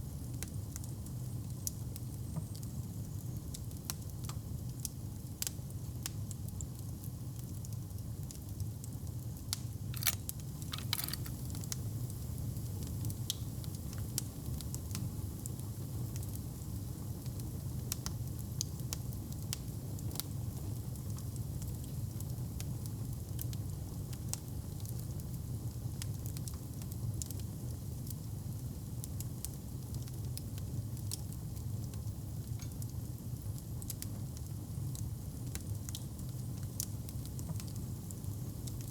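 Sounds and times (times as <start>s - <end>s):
wood fire crackling and popping: 9.8s - 12.5s.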